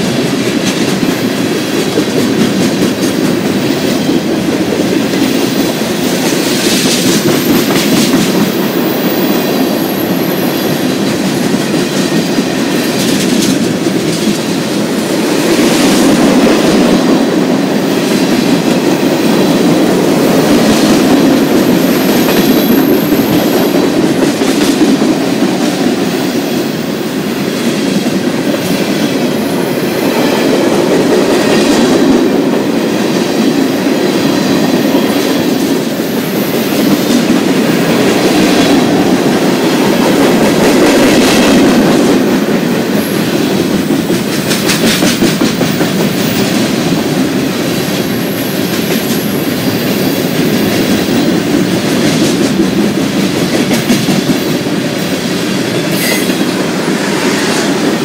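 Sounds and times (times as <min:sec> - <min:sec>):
train wheels rumbling on rail: 0:00.0 - 0:58.0
faint wheel squeal: 0:56.0 - 0:56.3.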